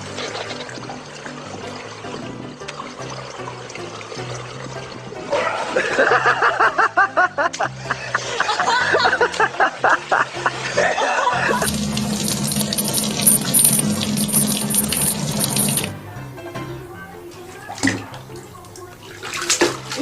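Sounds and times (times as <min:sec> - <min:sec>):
water running from a tap: 0:11.5 - 0:16.0, 0:17.3 - 0:20.0.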